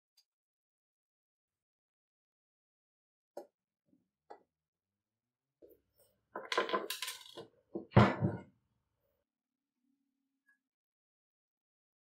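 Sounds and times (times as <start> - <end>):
small metal parts clinking: 6.4 - 7.4.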